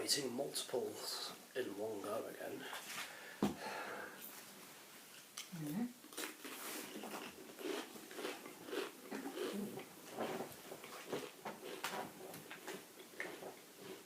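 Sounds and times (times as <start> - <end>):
crunching crisps: 6.2 - 9.5.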